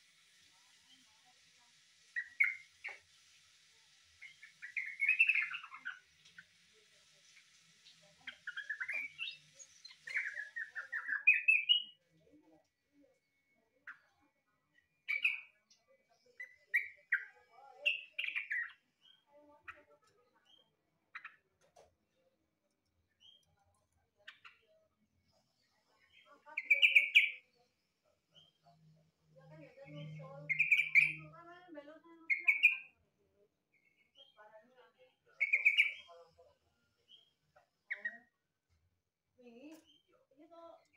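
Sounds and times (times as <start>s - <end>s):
bird singing rapid notes: 4.2s - 6.0s, 29.9s - 31.3s, 35.4s - 36.1s
bird singing chirping notes: 29.9s - 31.3s.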